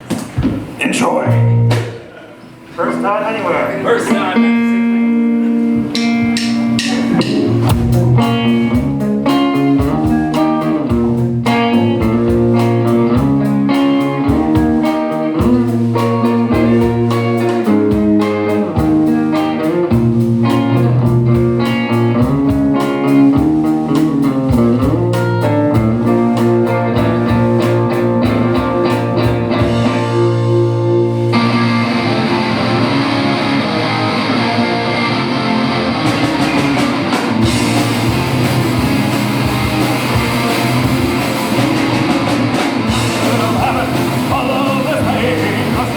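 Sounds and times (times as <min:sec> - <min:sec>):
bass guitar: 0:00.0 - 0:45.9
electric guitar: 0:00.0 - 0:45.9
steady high wash: 0:02.1 - 0:09.2
sharp drum hits: 0:05.8 - 0:09.0.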